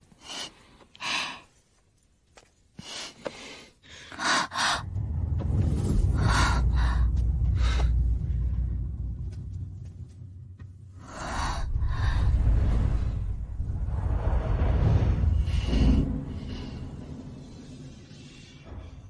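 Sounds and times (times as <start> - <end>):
low rumble: 4.6 - 19.0.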